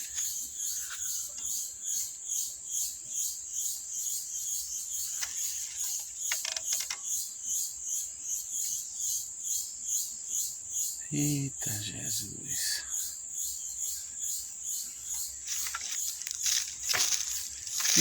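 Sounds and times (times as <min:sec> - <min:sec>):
pulsing insect chorus: 0:00.0 - 0:18.0
short crackles: 0:15.5 - 0:18.0.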